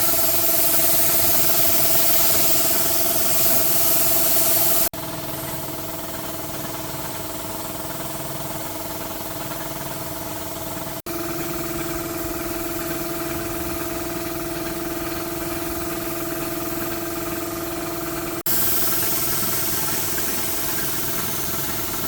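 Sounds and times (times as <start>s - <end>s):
loud spraying hiss: 0.0s - 4.9s, 18.5s - 22.0s.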